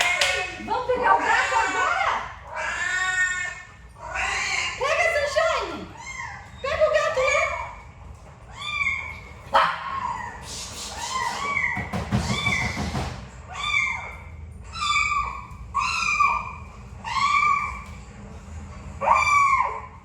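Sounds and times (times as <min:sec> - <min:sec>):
young animal crying: 0:01.1 - 0:07.9, 0:08.5 - 0:18.1, 0:19.0 - 0:20.0
rustling and knocking: 0:11.5 - 0:13.4.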